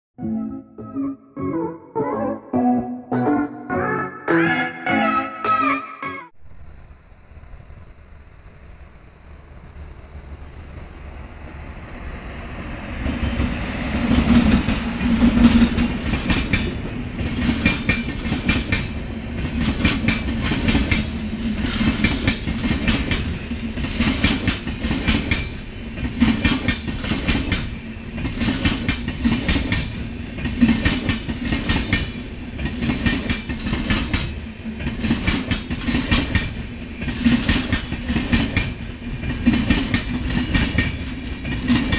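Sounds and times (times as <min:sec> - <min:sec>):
train passing at speed: 0:06.3 - 0:41.9
clickety-clack of train wheels: 0:08.4 - 0:41.9.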